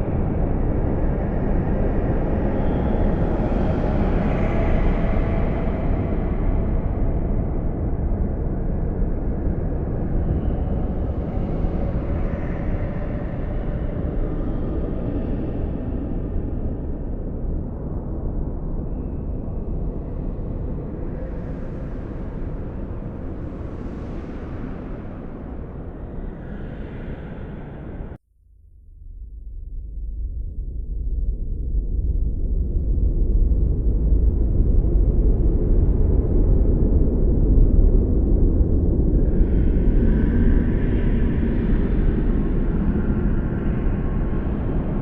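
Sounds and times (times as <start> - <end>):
blizzard wind blowing: 0.0 - 28.2, 30.1 - 45.0.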